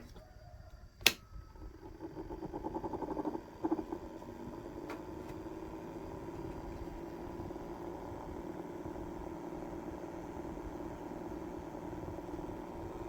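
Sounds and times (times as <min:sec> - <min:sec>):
sharp click: 0:01.0 - 0:01.3
small electric motor humming: 0:01.5 - 0:13.0.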